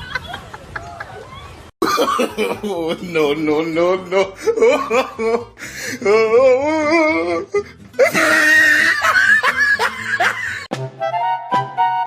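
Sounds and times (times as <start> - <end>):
laughter: 0.0 - 3.1, 8.0 - 10.7
music with held notes: 9.6 - 12.0.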